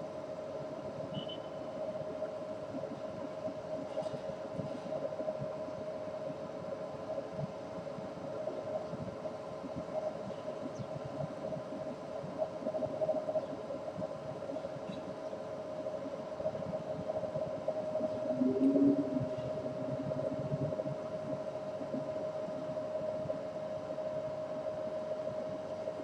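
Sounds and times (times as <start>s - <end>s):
mechanical hum: 0.0s - 26.0s
fluttering low rumble: 16.5s - 22.7s.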